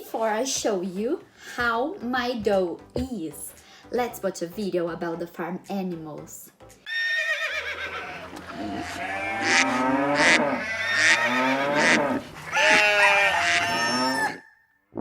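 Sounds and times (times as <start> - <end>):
farm animals calling: 6.9 - 14.6.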